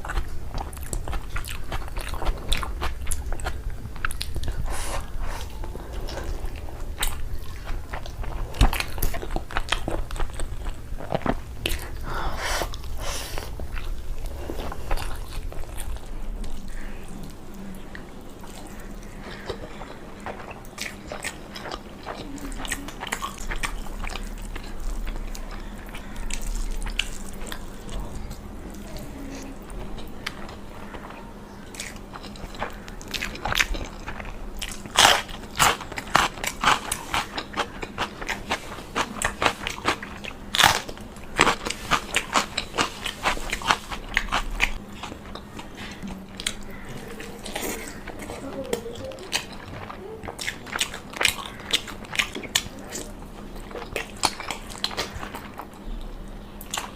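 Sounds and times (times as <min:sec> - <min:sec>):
crunchy biting and chewing: 0:18.5 - 0:56.9.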